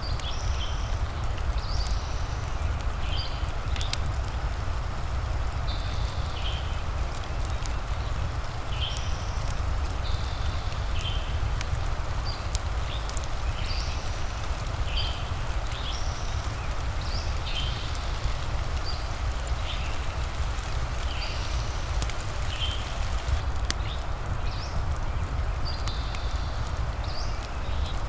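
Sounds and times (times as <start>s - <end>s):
steady rain: 0.0s - 28.0s
fireplace crackling: 6.7s - 24.9s.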